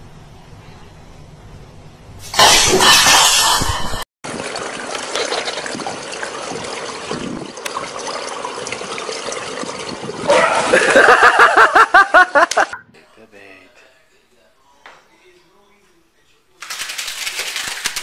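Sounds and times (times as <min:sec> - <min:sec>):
pool water sloshing and lapping: 0:04.2 - 0:11.3.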